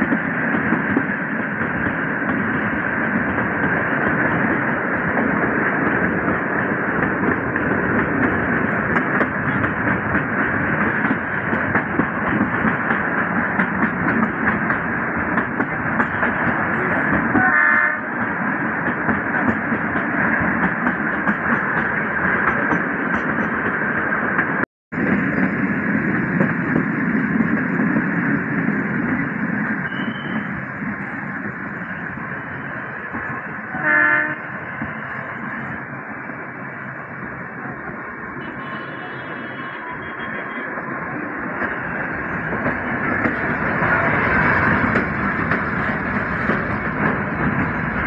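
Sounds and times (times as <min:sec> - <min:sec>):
train wheels on track: 0:00.0 - 0:48.0
train horn blast: 0:17.3 - 0:18.1, 0:33.7 - 0:34.6.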